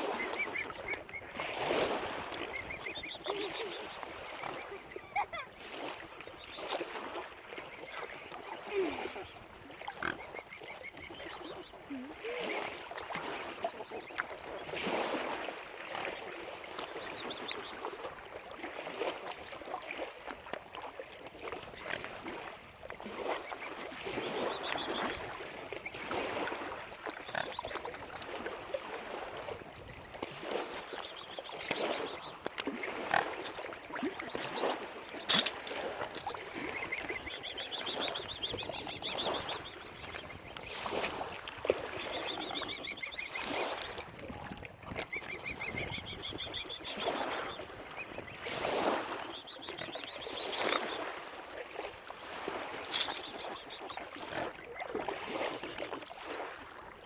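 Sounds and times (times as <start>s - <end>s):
waterfowl calling: 0.0s - 15.2s, 29.0s - 51.2s.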